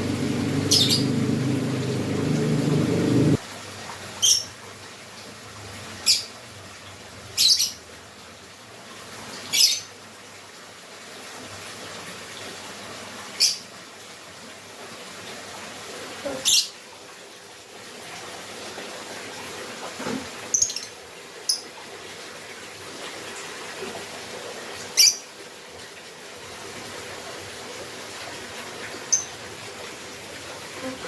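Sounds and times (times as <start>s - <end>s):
lovebird high-pitched calls: 0.0s - 3.4s, 4.2s - 4.5s, 7.4s - 7.8s, 9.5s - 9.9s, 13.4s - 13.7s, 16.4s - 16.8s, 20.5s - 21.7s, 25.0s - 25.3s, 29.1s - 29.3s.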